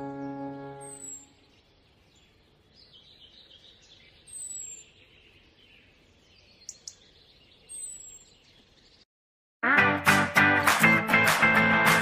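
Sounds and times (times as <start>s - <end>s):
bird whistle: 0.0s - 1.4s.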